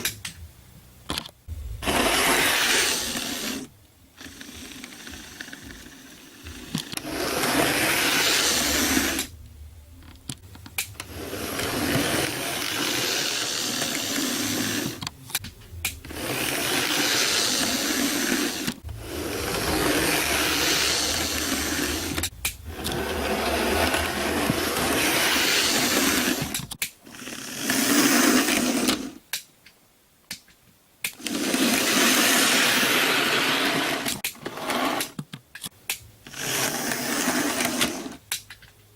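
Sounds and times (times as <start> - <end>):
model train motor whirring: 1.8 - 9.3, 11.0 - 15.1, 16.1 - 29.2, 31.2 - 35.2, 36.3 - 38.2.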